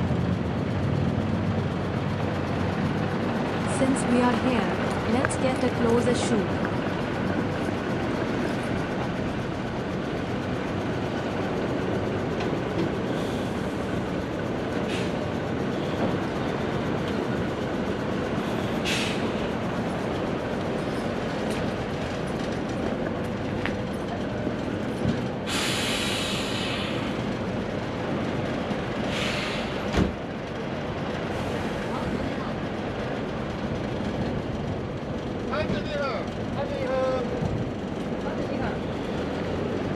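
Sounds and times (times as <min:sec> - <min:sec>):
diesel truck engine rumbling: 0:00.0 - 0:39.9
short hiss: 0:25.5 - 0:27.0.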